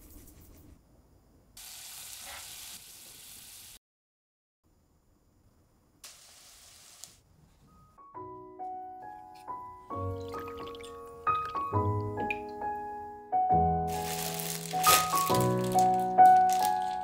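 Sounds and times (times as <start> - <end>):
bread sizzling in butter: 1.6 - 3.8, 6.0 - 7.2.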